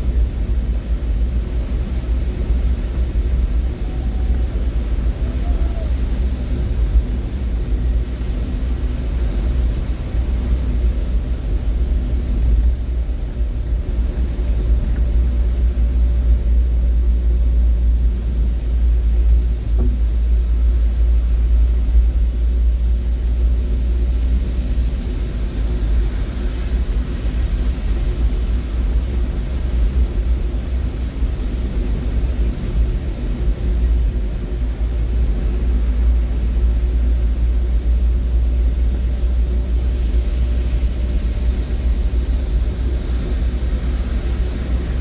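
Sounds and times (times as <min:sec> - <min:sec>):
motor vehicle engine rumbling: 0:00.0 - 0:45.0.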